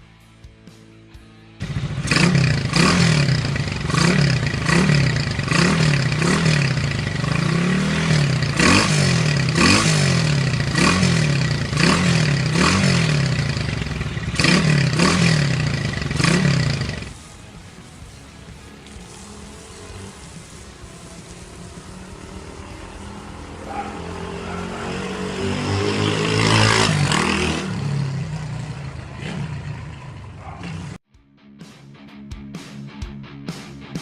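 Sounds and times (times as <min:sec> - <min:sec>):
exhaust crackling and popping: 0:01.6 - 0:23.8
motorcycle engine revving: 0:01.6 - 0:31.0.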